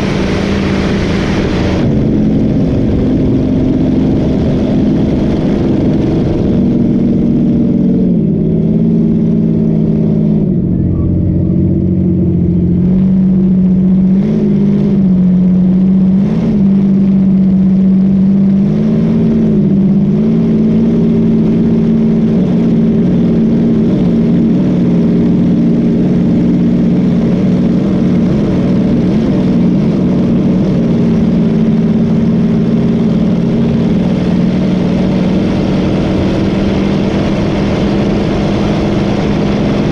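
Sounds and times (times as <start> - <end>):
wind and water rushing: 0.0 - 7.1
boat engine running: 0.0 - 39.9.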